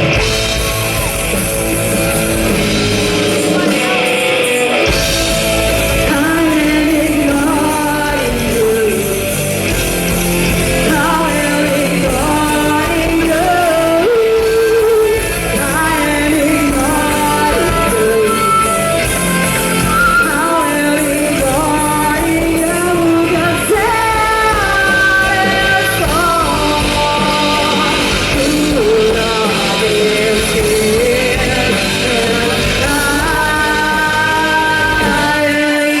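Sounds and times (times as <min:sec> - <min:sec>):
lead vocal singing: 0:00.0 - 0:36.0
rock band playing: 0:00.0 - 0:36.0.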